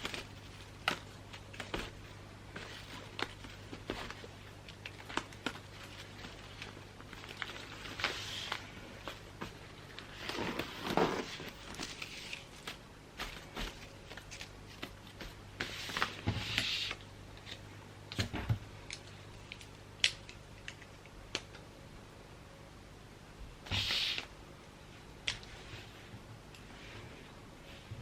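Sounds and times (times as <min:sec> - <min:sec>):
wrapping paper crinkling: 0:00.0 - 0:16.2.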